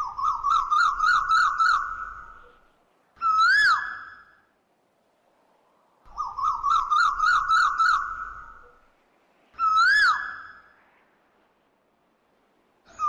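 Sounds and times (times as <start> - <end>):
bird warbling trill: 0.0 - 2.6, 6.1 - 8.8.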